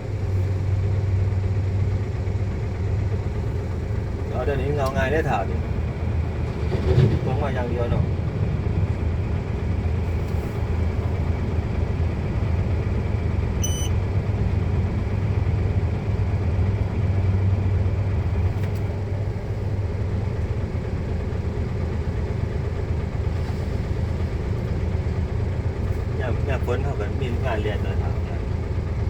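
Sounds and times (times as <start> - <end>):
truck diesel engine running: 0.0 - 29.0
short high beep: 13.6 - 14.0.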